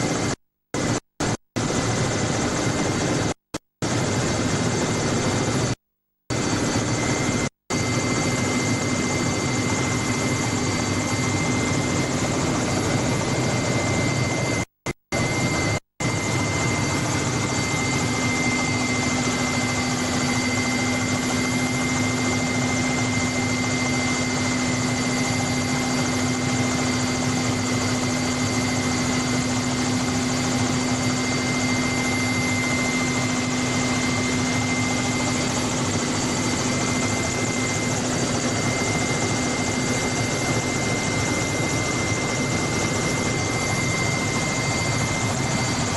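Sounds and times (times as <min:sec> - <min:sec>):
helicopter drone and whine: 0:00.0 - 0:45.9.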